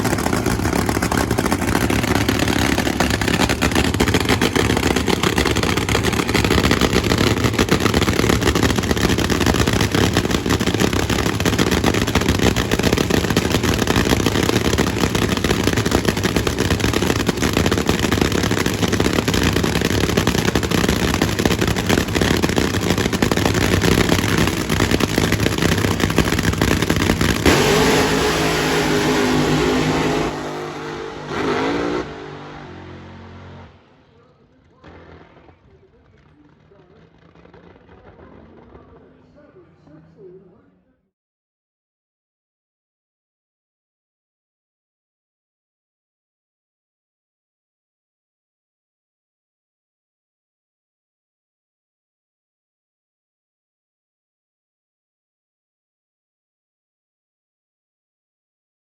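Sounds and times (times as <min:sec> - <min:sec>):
racing car engine crackling: 0:00.0 - 0:39.4.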